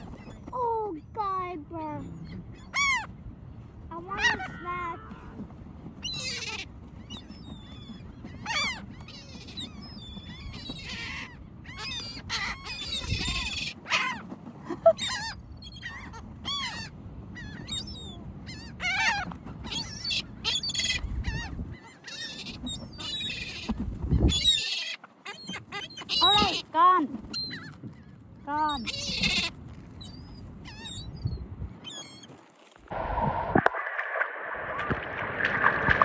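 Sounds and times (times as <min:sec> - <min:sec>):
birds squawking: 0:02.2 - 0:03.1, 0:06.0 - 0:14.2, 0:14.9 - 0:26.7, 0:27.3 - 0:32.3.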